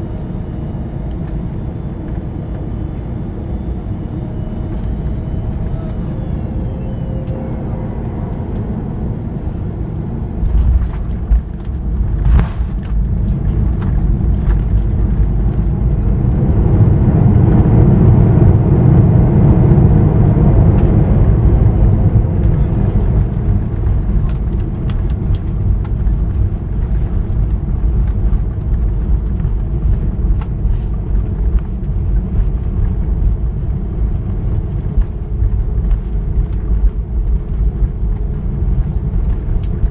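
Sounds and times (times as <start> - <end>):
jet engine reverse thrust rumble: 0.0 - 39.9.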